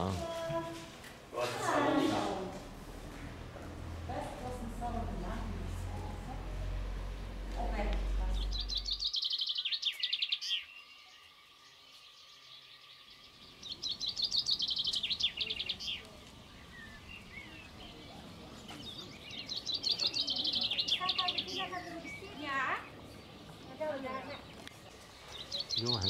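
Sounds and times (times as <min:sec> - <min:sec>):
songbird singing: 0:04.9 - 0:26.0
soft bird chirps: 0:08.1 - 0:26.0.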